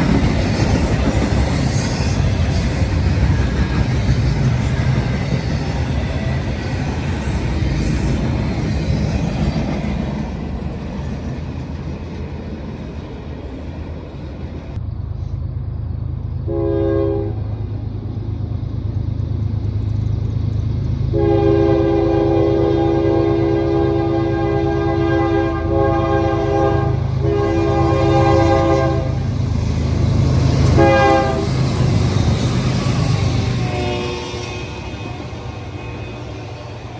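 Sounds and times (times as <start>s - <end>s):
freight train rumbling on rails: 0.0s - 36.9s
locomotive air horn blasts: 16.5s - 17.5s, 21.1s - 29.3s, 30.6s - 31.6s, 33.4s - 36.9s.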